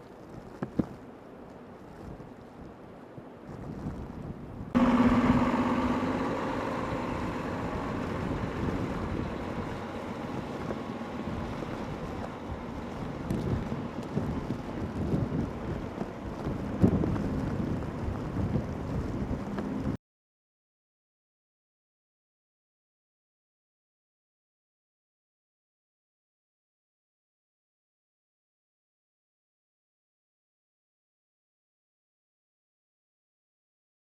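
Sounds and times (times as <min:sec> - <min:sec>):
wind buffeting microphone: 0:00.0 - 0:20.0
pitched hum: 0:04.7 - 0:20.0.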